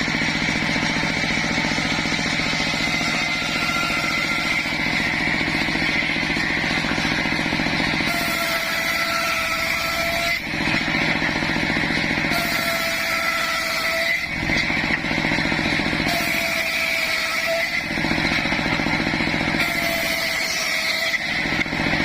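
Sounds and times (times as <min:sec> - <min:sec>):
thin high whine: 0:00.0 - 0:11.4
sawmill engine running: 0:00.0 - 0:22.0.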